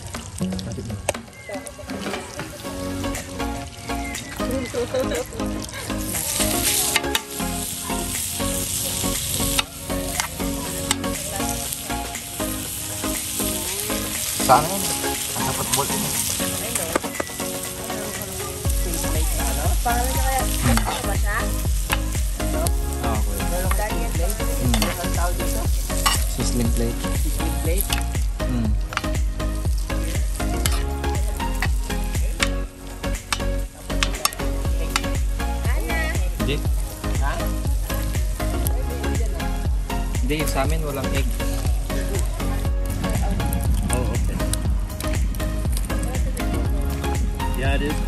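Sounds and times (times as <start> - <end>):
meat frying in bubbling fat: 0.0 - 46.0
low rumble: 41.5 - 47.6.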